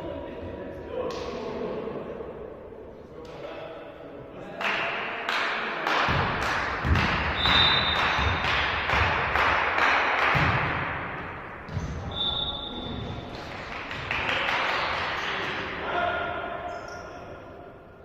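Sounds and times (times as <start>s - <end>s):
volleyball hits and thuds: 6.1s - 12.1s
whistle blast: 7.4s - 8.3s, 12.1s - 12.9s.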